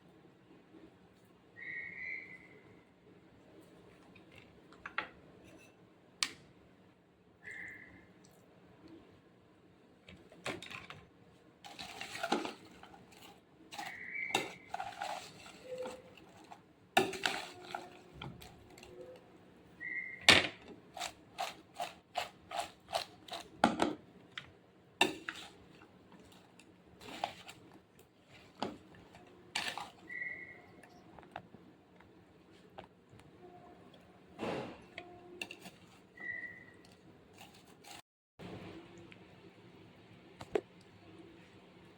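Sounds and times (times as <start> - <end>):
utensils and dishes clattering: 11.6 - 19.2, 28.4 - 30.2.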